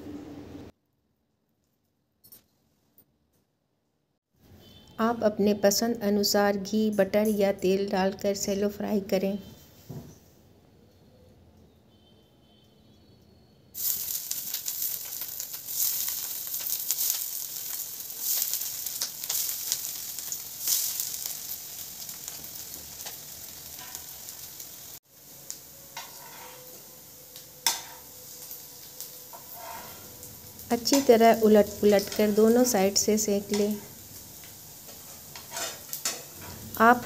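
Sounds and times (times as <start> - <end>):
food sizzling in hot oil: 13.8 - 37.0.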